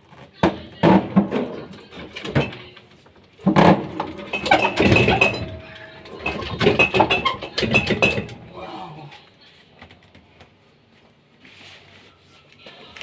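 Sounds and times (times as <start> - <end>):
plastic and metal parts clattering: 0.1 - 8.4.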